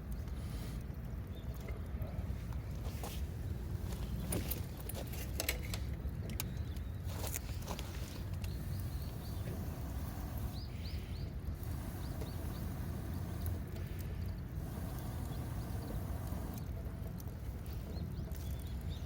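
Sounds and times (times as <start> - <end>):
low steady rumble: 0.0 - 19.0
bird chirping: 6.4 - 16.6, 17.6 - 19.0.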